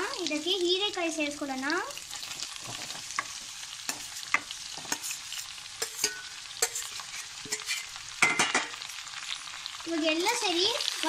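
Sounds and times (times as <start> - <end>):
frying sizzle in hot oil: 0.0 - 11.0
steel spoon scraping steel bowl: 3.9 - 8.0.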